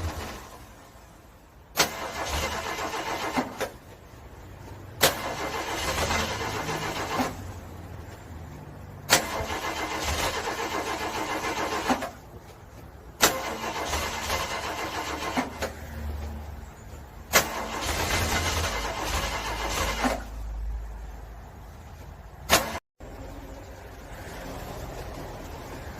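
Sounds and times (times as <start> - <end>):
car engine cranking: 0.0 - 1.1, 1.7 - 8.0, 9.0 - 16.2, 17.1 - 20.6.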